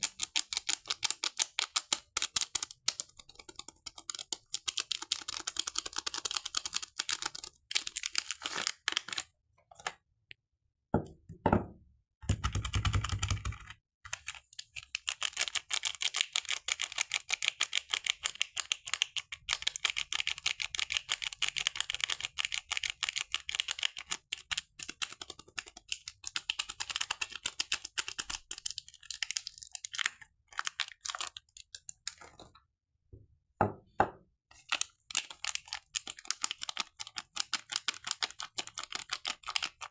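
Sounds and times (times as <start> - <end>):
packaging crinkling: 7.1 - 9.2.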